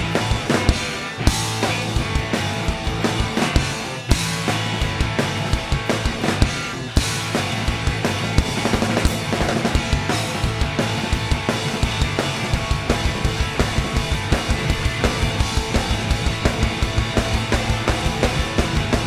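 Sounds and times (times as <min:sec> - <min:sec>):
drum kit beat: 0:00.0 - 0:19.0
instrumental rock band: 0:00.0 - 0:19.0.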